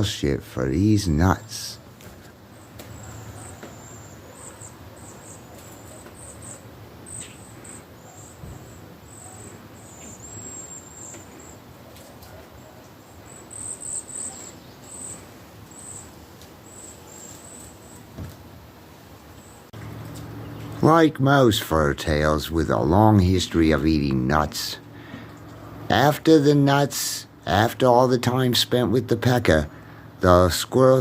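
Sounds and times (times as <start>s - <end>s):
faint high-pitched chirping: 2.5s - 18.2s.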